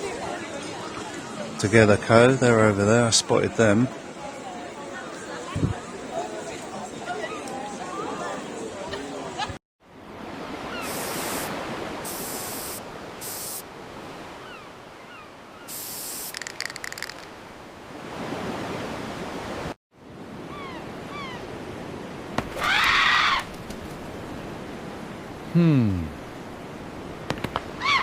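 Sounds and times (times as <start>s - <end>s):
wind rushing on microphone: 5.5s - 5.8s
high hiss bursts: 10.8s - 13.6s, 15.7s - 17.2s.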